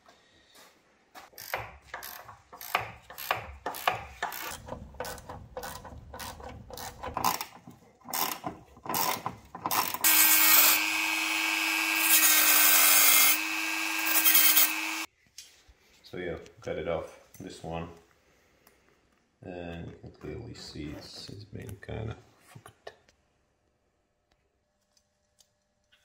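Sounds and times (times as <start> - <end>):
power tool hissing and whining: 10.0 - 15.1.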